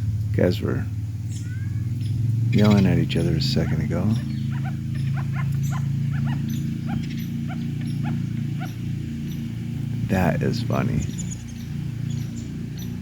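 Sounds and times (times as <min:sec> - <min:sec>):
steady low hum: 0:00.0 - 0:13.0
short repeated animal calls: 0:04.2 - 0:08.8.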